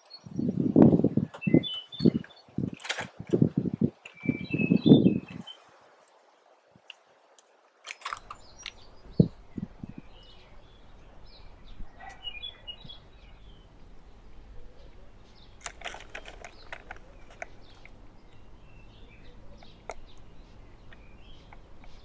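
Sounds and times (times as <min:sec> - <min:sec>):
faint bird chirps: 0:01.2 - 0:02.5, 0:08.2 - 0:22.0
soft clicks and rustles: 0:14.8 - 0:18.4, 0:19.6 - 0:22.0.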